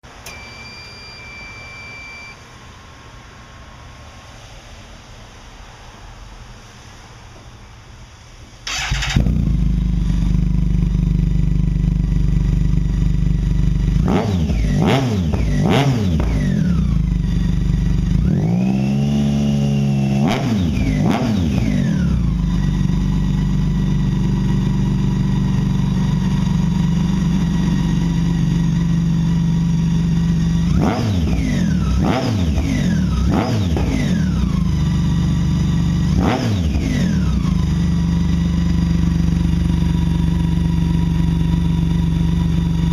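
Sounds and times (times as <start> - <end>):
car engine revving: 13.4 - 23.1, 25.4 - 38.1.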